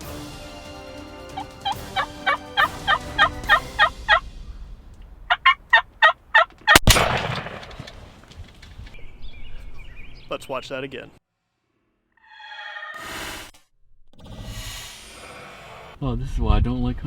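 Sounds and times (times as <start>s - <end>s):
music: 0.0s - 4.8s
wild turkey calls: 1.4s - 4.2s, 5.3s - 6.7s
shotgun blast: 6.7s - 8.3s.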